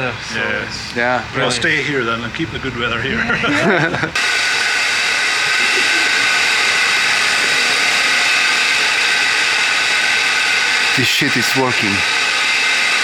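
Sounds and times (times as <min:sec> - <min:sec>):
rushing air hiss: 0:03.7 - 0:13.0.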